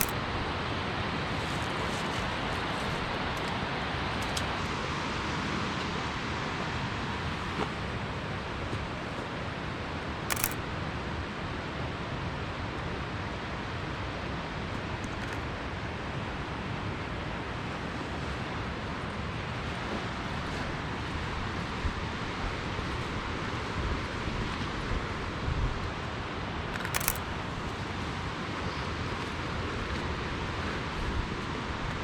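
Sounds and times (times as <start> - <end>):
camera shutter clicking: 0.0 - 0.4, 10.3 - 10.8, 26.8 - 27.6
rushing water: 0.0 - 26.7.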